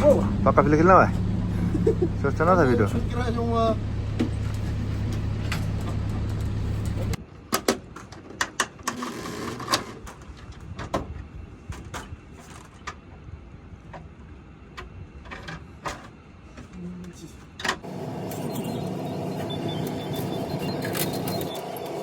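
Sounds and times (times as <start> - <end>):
machine humming: 0.0 - 7.2, 17.8 - 22.0.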